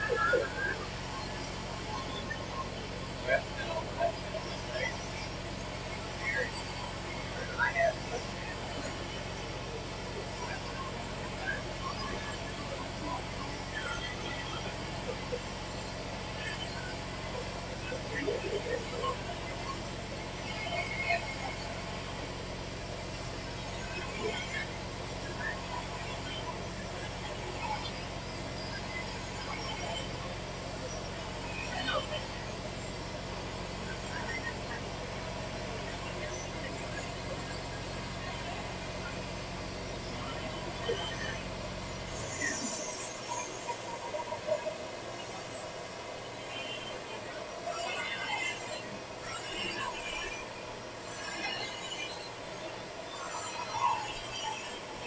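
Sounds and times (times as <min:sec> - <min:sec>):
shop room noise: 0:41.4 - 0:46.4
hiss: 0:42.1 - 0:44.2.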